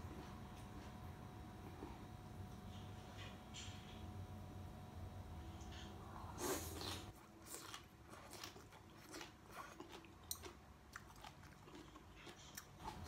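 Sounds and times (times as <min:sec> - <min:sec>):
person biting and chewing: 0:06.5 - 0:13.0.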